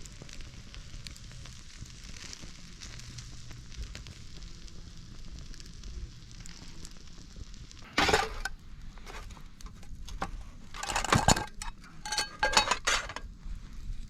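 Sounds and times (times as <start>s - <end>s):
metal cooking gear clinking: 7.9s - 8.5s, 10.1s - 13.2s.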